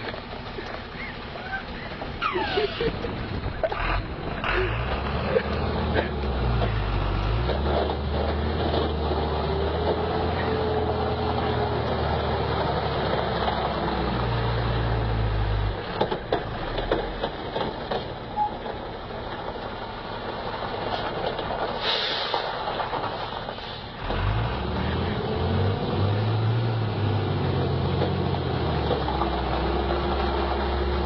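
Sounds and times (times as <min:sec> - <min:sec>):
street noise: 0:00.0 - 0:31.0
truck engine humming: 0:00.0 - 0:31.0.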